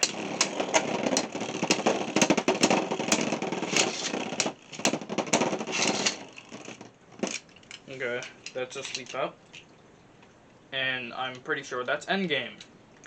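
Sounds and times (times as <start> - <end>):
spinning tops whirring and grinding: 0.0 - 7.5
spinning tops clicking together: 0.0 - 9.2.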